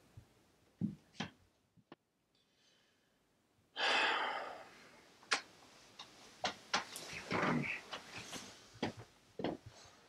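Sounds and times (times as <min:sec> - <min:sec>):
boy sighing: 0:03.8 - 0:04.7.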